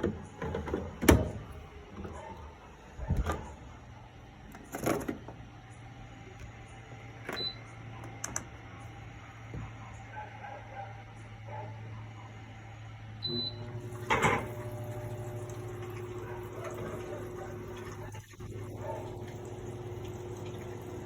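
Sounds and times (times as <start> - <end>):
washing machine clicks and knocks: 0.0 - 2.3, 3.0 - 3.6, 7.2 - 8.5, 14.0 - 14.7
washing machine humming: 0.0 - 21.0.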